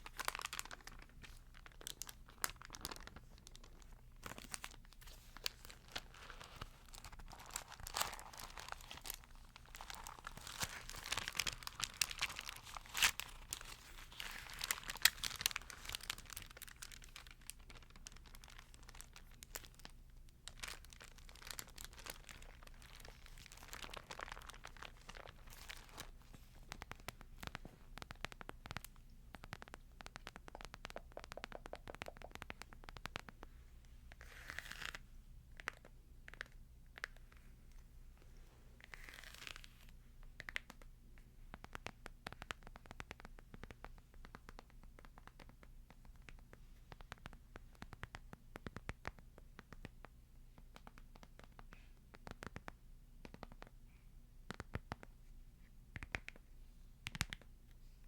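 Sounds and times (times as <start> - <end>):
thin pages crinkling: 0.0 - 33.4, 38.8 - 40.8.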